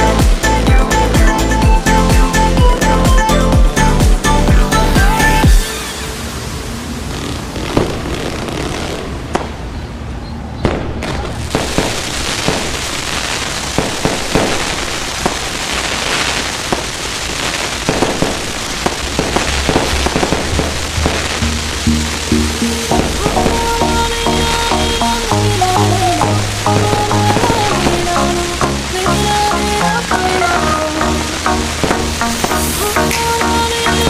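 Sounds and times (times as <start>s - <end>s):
fireworks crackling and popping: 5.1s - 9.8s, 10.6s - 34.0s
loud firework bangs: 5.5s - 9.9s, 10.6s - 22.3s, 25.1s - 29.0s, 31.6s - 32.9s.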